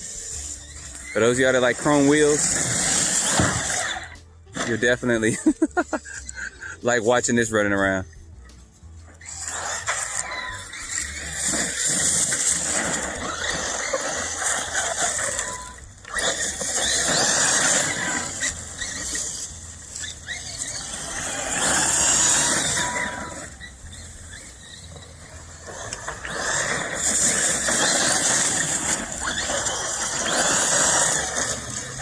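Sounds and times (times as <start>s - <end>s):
electric motor whining: 0.0s - 6.6s, 9.0s - 32.0s
tyres scrabbling over dirt: 9.1s - 32.0s.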